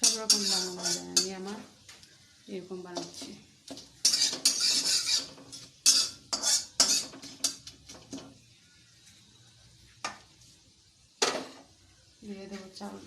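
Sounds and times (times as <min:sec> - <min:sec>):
metal spoon scraping pan: 0:00.0 - 0:01.6, 0:03.0 - 0:08.3.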